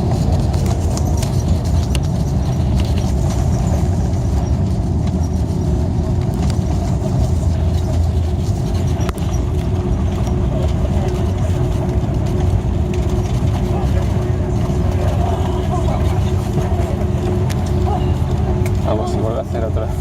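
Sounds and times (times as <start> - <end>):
airliner cabin engine and airflow noise: 0.0 - 20.0.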